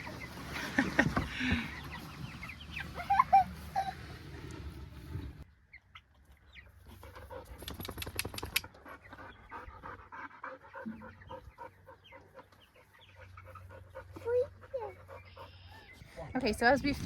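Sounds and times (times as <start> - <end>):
chicks peeping faintly: 0.0 - 17.0
dog panting rapidly: 7.0 - 16.0.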